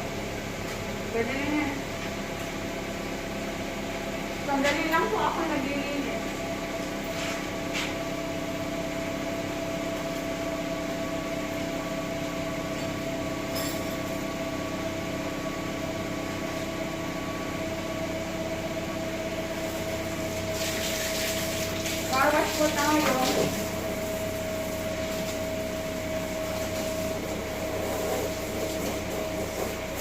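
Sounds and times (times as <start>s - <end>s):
car engine idling with whine: 0.0s - 20.6s, 22.1s - 30.0s.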